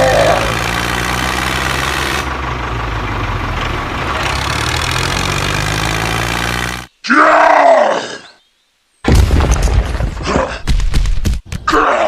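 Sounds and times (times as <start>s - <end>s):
engine idling: 0.0s - 6.9s.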